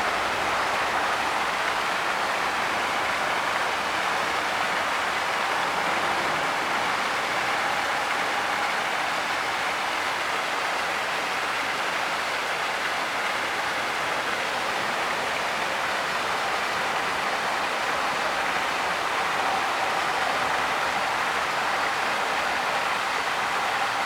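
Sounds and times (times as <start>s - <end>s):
waterfall rushing: 13.9s - 24.0s.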